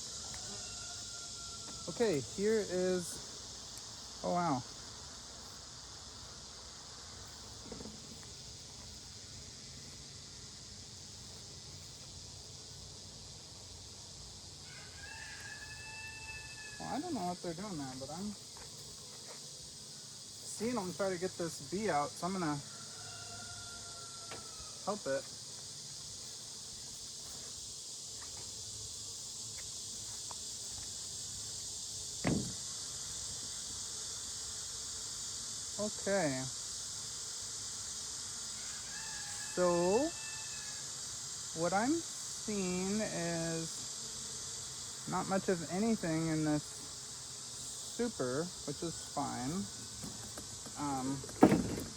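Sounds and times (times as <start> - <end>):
honeybees buzzing: 0.0 - 51.9
insects droning: 0.0 - 51.9
short thump: 32.2 - 32.6, 51.2 - 51.9.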